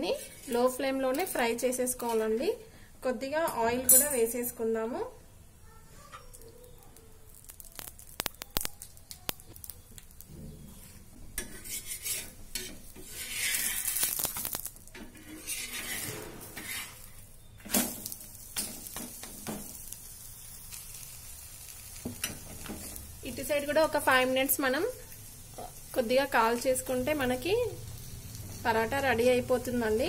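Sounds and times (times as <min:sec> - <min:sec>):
spatula scraping griddle: 0:00.0 - 0:01.3, 0:10.4 - 0:19.8, 0:20.7 - 0:23.1
bread frying in oil sizzling: 0:06.3 - 0:30.0.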